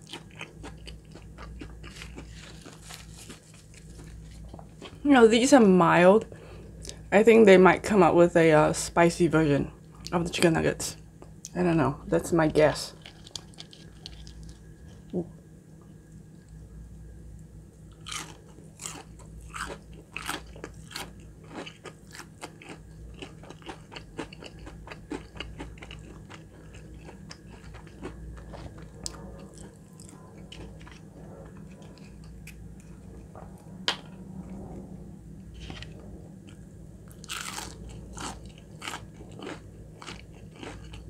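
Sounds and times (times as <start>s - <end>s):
crunchy biting and chewing: 0.0s - 5.0s, 12.9s - 15.1s, 17.9s - 33.3s, 35.6s - 41.0s.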